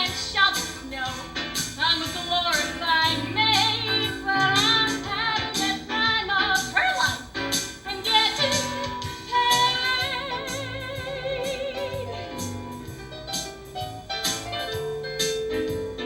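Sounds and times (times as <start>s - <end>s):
instrumental accompaniment: 0.0s - 16.0s
person singing a show tune: 3.0s - 7.3s.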